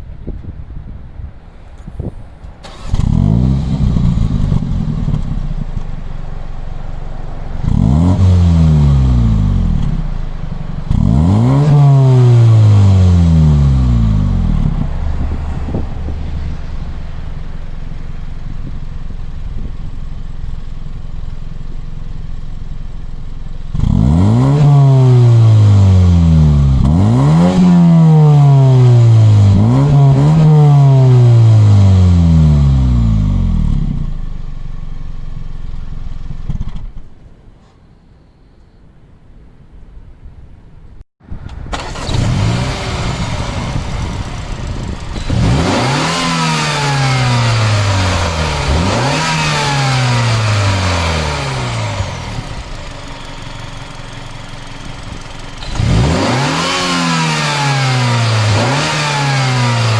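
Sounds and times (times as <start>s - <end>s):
car engine idling and revving: 1.6s - 37.4s, 41.3s - 59.9s.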